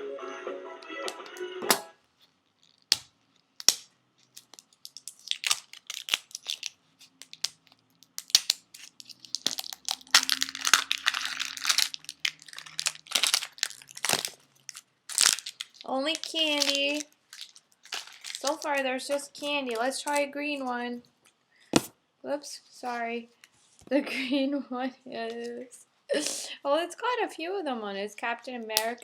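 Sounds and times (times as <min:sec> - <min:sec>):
background music: 0:00.0 - 0:02.0
wrapping crinkling and tearing: 0:02.2 - 0:20.3.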